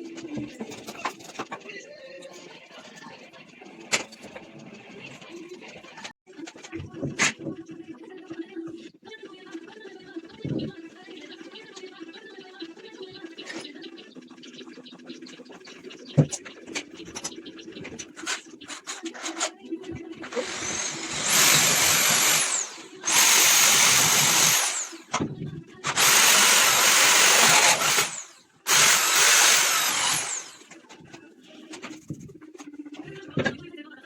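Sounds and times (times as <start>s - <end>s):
electric drill whining: 20.2s - 25.2s, 25.8s - 30.7s.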